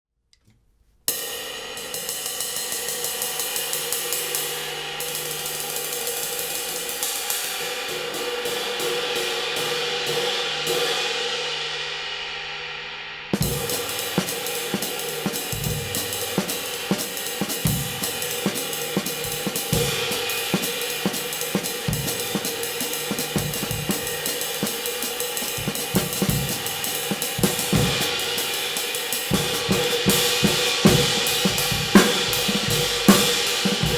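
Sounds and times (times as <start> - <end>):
crash cymbal struck with sticks: 1.2 - 33.9
drum kit groove: 13.4 - 33.9.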